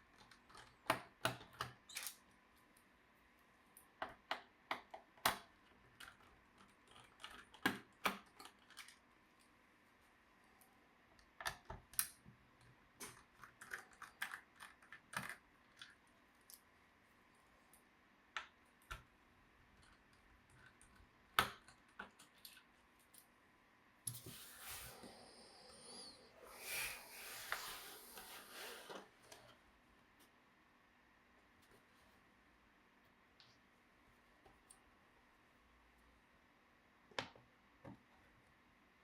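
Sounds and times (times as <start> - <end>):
small clicks and taps of tools: 0.1 - 2.8.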